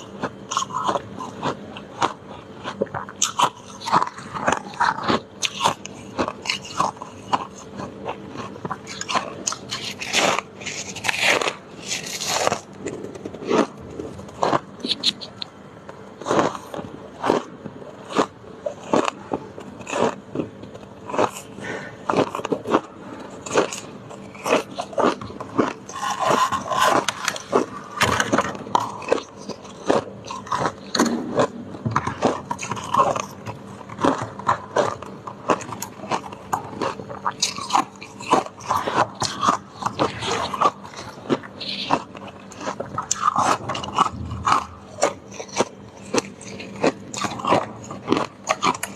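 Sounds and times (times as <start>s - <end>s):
ice being chewed: 0.0s - 48.9s.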